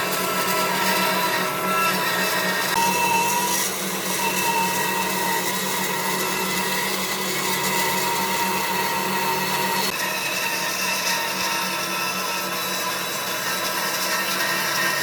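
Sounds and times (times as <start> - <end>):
power tool motor whining on wood: 0.0 - 15.0.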